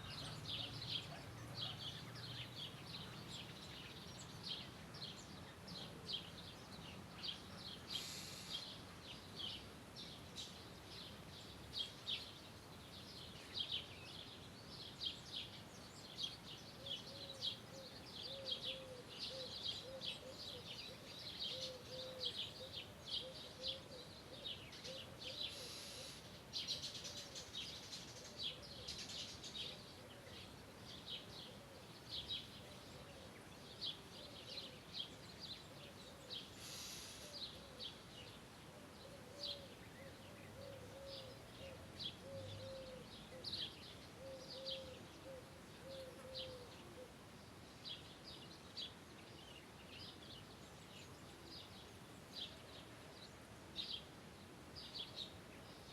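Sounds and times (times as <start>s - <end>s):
birds chirping: 0.0s - 55.9s
lower bird call: 7.8s - 8.8s, 16.8s - 27.6s, 35.8s - 37.9s.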